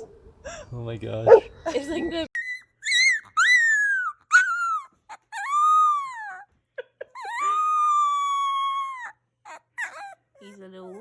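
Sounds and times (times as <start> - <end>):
dog whining and howling: 1.3 - 1.5, 2.1 - 6.5, 7.2 - 11.0.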